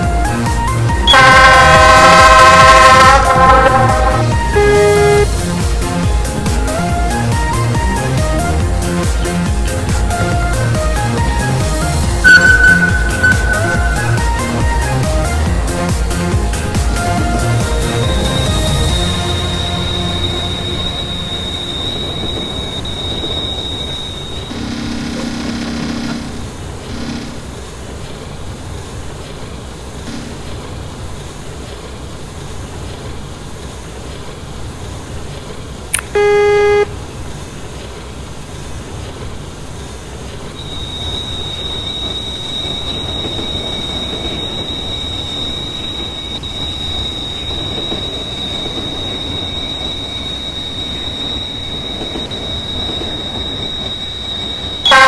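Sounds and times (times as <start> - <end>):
train running on tracks: 0.0 - 55.0
high-pitched wheel squeal: 0.1 - 5.4, 10.2 - 16.0, 16.6 - 27.4, 40.6 - 55.0
loud train horn blast: 0.2 - 6.9, 9.9 - 27.5, 36.1 - 37.2, 40.6 - 55.0
low horn-like tone: 0.3 - 5.6, 12.1 - 15.7, 16.6 - 27.4, 36.1 - 37.1, 40.6 - 55.0.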